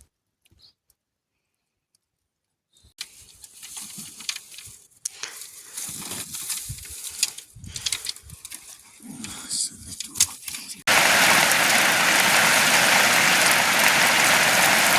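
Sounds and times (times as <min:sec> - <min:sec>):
dense crackling pattering noise: 0:05.9 - 0:14.9.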